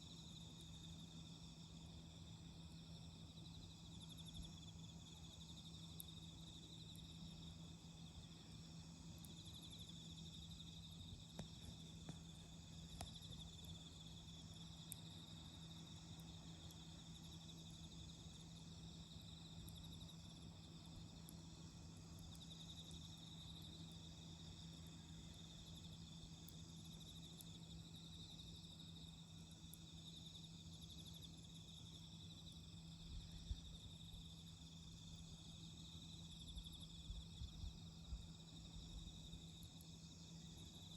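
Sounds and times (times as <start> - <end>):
crickets chirping: 0.0 - 40.9
campfire pops: 11.2 - 13.4.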